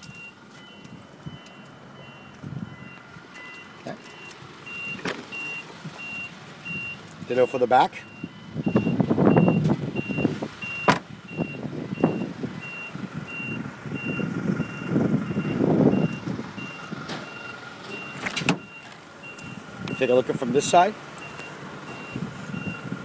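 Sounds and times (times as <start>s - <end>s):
electronic warning beep: 0.0s - 20.1s, 21.2s - 22.9s.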